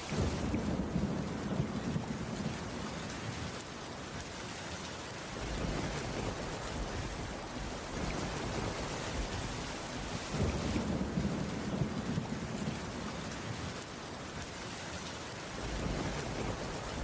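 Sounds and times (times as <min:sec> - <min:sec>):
steady rainfall: 0:00.0 - 0:17.0
thunder rumbling: 0:00.1 - 0:02.9, 0:05.4 - 0:13.8, 0:15.6 - 0:17.0.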